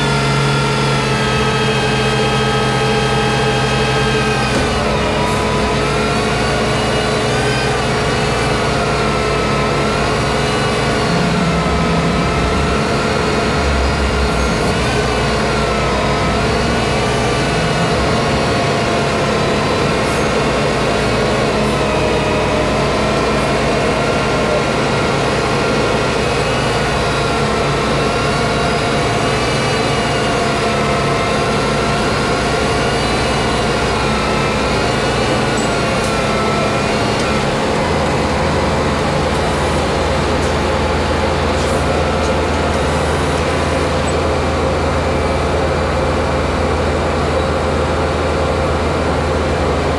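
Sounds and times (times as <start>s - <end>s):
truck diesel engine running: 0.0s - 49.9s.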